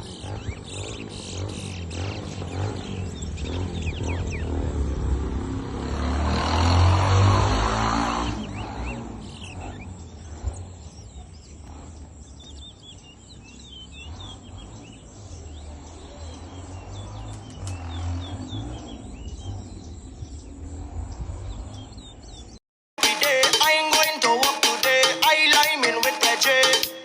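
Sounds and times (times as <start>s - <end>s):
bird singing high chirps: 0.0s - 4.8s, 8.2s - 20.7s.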